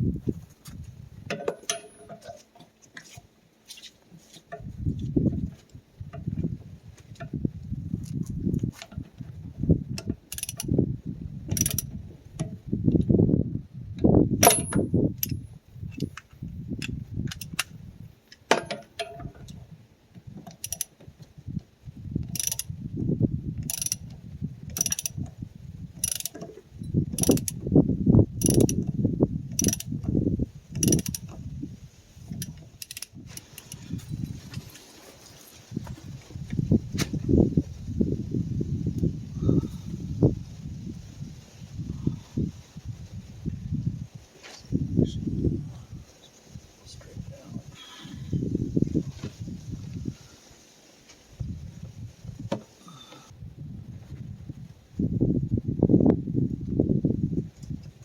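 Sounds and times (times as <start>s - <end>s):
knocks and handling noise: 0.5s - 4.7s, 18.3s - 19.6s
ratchet wrench clicking: 10.3s - 10.7s, 11.5s - 11.9s, 14.4s - 15.4s, 17.3s - 17.7s, 20.6s - 20.9s, 22.3s - 22.7s, 23.6s - 24.1s, 24.8s - 25.2s, 26.0s - 26.4s, 27.2s - 27.6s, 28.4s - 28.9s, 29.5s - 29.9s, 30.7s - 31.3s, 32.4s - 33.8s.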